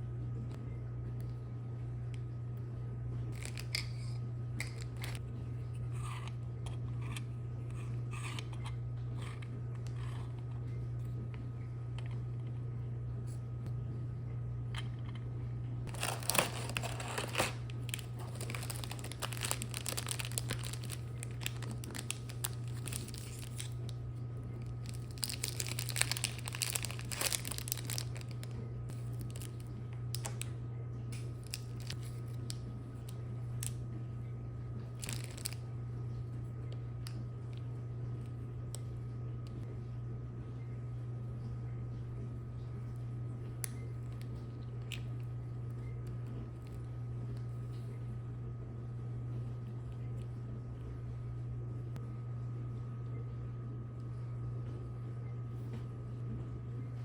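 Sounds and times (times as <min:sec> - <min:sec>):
steady low hum: 0:00.0 - 0:57.0
crinkling and rustling: 0:15.9 - 0:23.9, 0:24.6 - 0:30.4, 0:31.2 - 0:32.6, 0:35.0 - 0:35.6.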